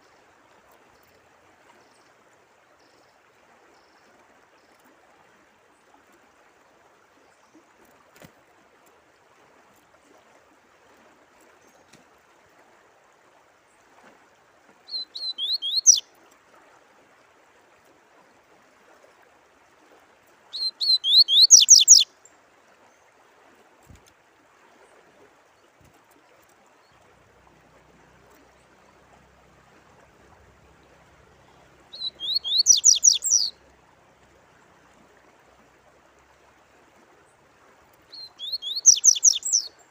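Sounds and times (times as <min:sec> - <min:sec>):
running water: 0:00.0 - 0:39.9
songbird singing: 0:14.9 - 0:16.1, 0:20.5 - 0:22.4, 0:30.8 - 0:33.7, 0:38.0 - 0:39.9.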